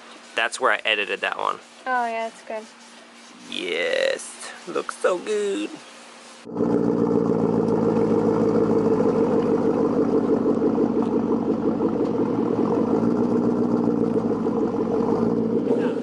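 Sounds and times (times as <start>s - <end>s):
car engine idling: 6.5s - 16.0s.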